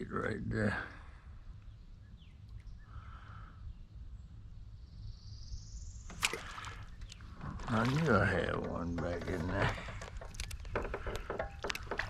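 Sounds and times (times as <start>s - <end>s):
faint bird calls: 0.8s - 8.0s.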